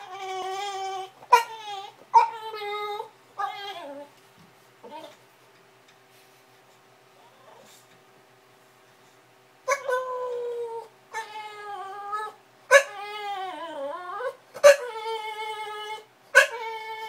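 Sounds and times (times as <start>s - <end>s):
dog whining: 0.0s - 4.1s, 4.8s - 5.2s, 7.2s - 7.8s, 9.7s - 17.0s.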